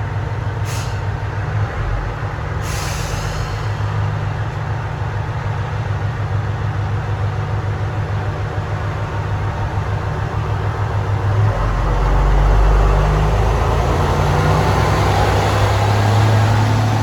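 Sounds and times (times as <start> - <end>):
diesel railcar idling: 0.0 - 17.0
air brakes hissing: 0.6 - 1.2, 2.6 - 4.2.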